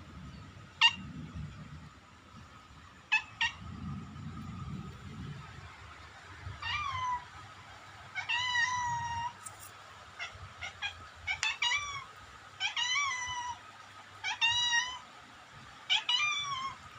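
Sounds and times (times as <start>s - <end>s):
cat meowing: 6.6s - 7.2s, 8.2s - 9.4s, 10.2s - 13.6s, 14.2s - 15.0s, 15.9s - 16.8s
cat chirps: 10.2s - 13.6s.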